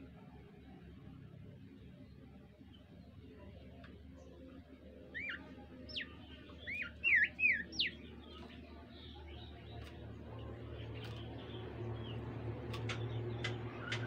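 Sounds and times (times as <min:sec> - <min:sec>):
steady low hum: 0:00.0 - 0:14.0
songbird whistling: 0:05.1 - 0:08.1.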